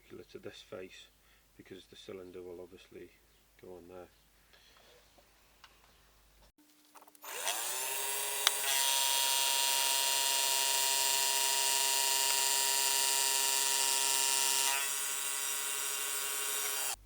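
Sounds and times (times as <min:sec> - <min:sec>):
milling machine spindle whine: 0:07.3 - 0:17.0.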